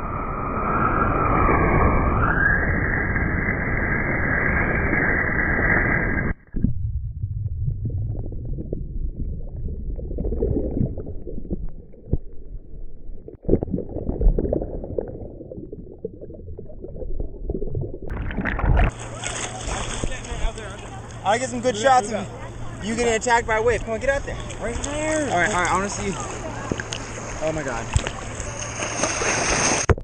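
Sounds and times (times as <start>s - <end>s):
muffled underwater rumble: 0.0s - 21.2s
water gurgling: 5.4s - 21.2s
underwater clicks: 26.6s - 27.1s.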